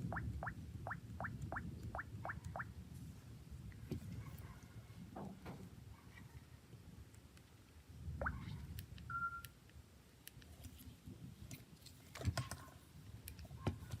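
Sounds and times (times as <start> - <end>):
brief steady beep: 9.1 - 9.5.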